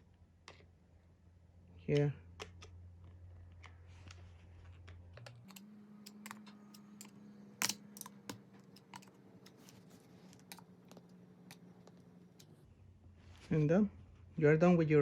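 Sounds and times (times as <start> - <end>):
low steady hum: 0.0 - 15.0
plastic clips clicking: 5.2 - 12.6.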